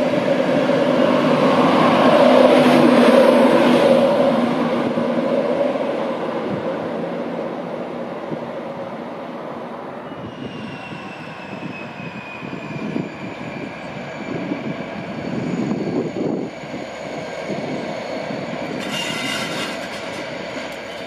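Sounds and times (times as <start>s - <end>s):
diesel locomotive engine rumbling: 0.0s - 21.0s
train wheel and rail noise: 0.0s - 21.0s.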